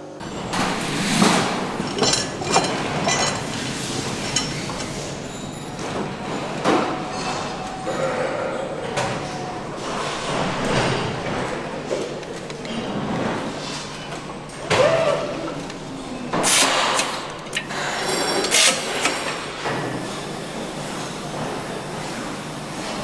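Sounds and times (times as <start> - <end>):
machinery background noise: 0.0 - 23.0
metal parts and tools clinking: 0.5 - 5.8.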